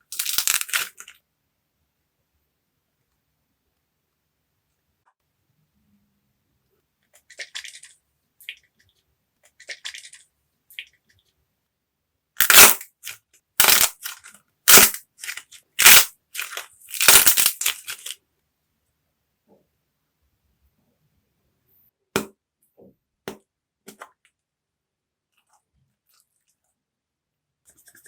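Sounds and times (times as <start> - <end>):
dried clay cracking and crunching: 0.0 - 1.2, 12.4 - 18.2.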